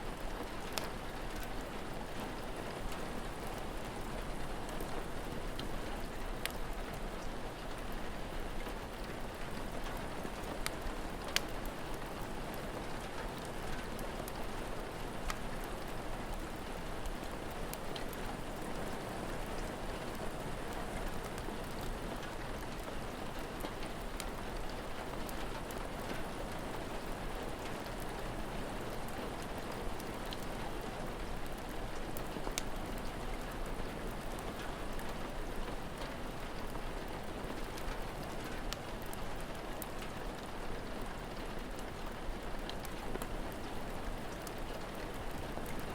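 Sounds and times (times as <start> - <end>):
steady rain falling: 0.0 - 45.9
wood fire crackling and popping: 10.0 - 12.2, 31.5 - 32.8.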